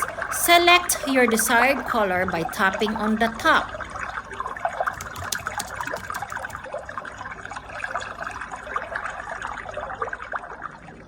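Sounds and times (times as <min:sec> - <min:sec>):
trickling water through speaker: 0:00.0 - 0:11.0.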